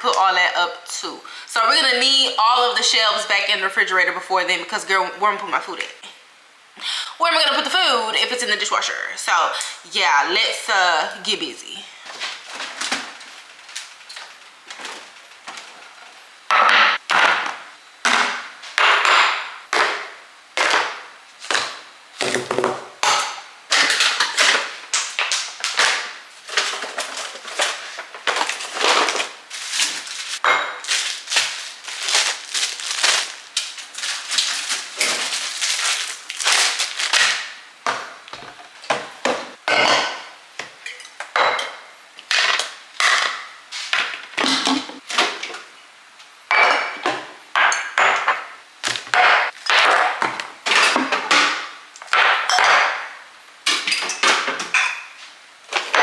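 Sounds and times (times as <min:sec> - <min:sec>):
plastic and glass rustling: 0:12.0 - 0:16.2, 0:23.7 - 0:37.6.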